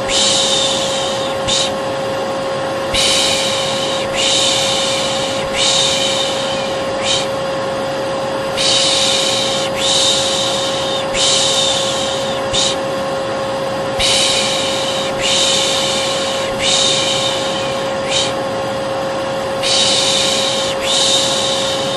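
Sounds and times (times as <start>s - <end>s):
person shushing: 0.0s - 1.8s, 2.9s - 7.4s, 8.6s - 12.8s, 14.0s - 18.4s, 19.6s - 21.9s
vacuum cleaner running: 0.0s - 21.9s.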